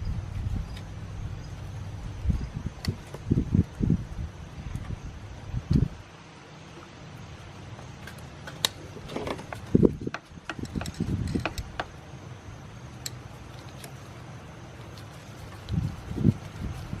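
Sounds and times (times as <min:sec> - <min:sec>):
metallic clicks of hand tools: 0:09.4 - 0:11.9.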